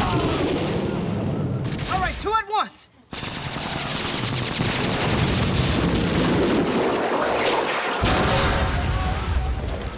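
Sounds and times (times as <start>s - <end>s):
loud explosions: 3.2s - 9.9s.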